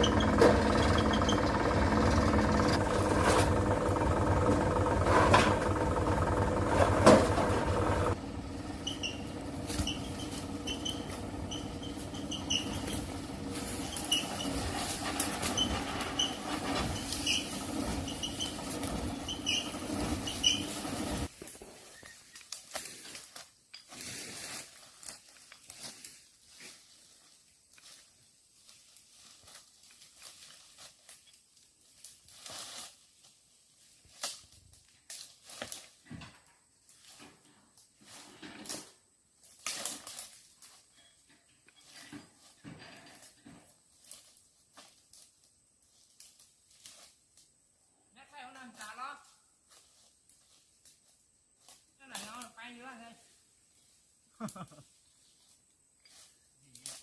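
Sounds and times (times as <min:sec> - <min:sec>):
faint engine hum: 0:00.0 - 0:21.3
truck engine running: 0:00.0 - 0:21.3.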